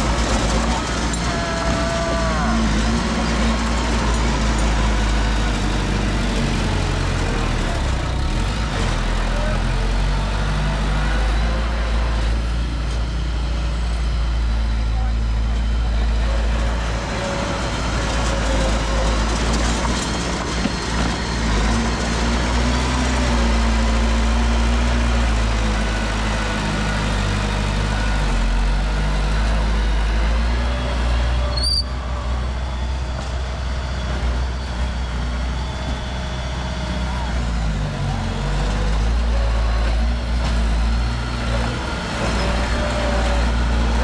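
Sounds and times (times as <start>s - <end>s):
diesel engine running: 0.0s - 44.0s
short high squeak: 31.4s - 32.1s.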